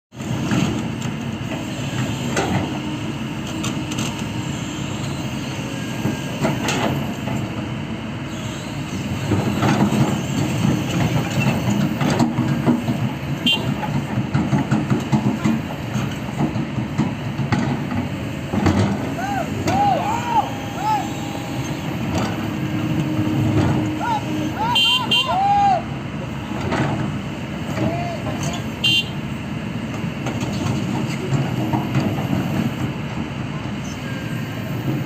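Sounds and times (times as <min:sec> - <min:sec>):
heavy diesel machinery running: 0:00.1 - 0:35.0.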